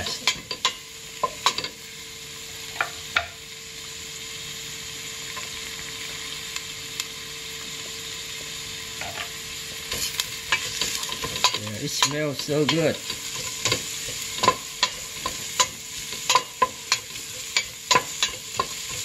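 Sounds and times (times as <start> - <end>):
food sizzling in hot oil: 0.0 - 19.0
spatula scraping and knocking pot: 9.9 - 19.0.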